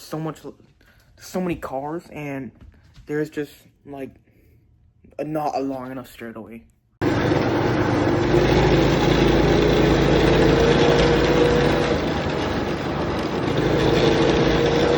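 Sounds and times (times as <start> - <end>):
go-kart engine running: 7.0 - 14.9.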